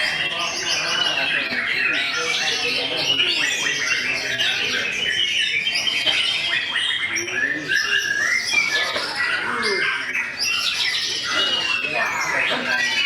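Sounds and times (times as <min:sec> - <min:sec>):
other songbirds singing: 0:00.0 - 0:13.0
songbird singing whistles: 0:02.8 - 0:09.0.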